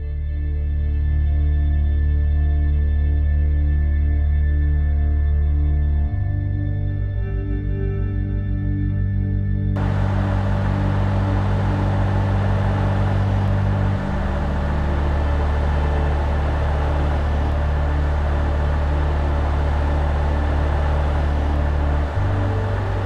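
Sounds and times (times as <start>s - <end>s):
ambient music with low notes: 0.0s - 23.0s
heavy truck engine and road noise: 9.8s - 23.0s.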